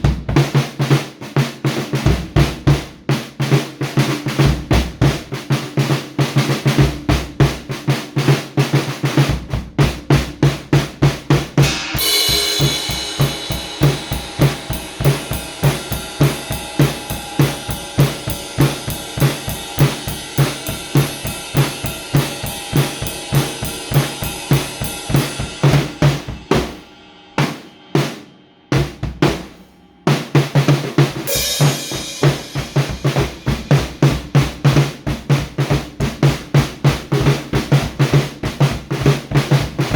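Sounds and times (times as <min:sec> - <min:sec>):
bass drum and snare: 0:00.0 - 0:39.9
cymbal crash: 0:11.6 - 0:29.9, 0:31.3 - 0:33.4.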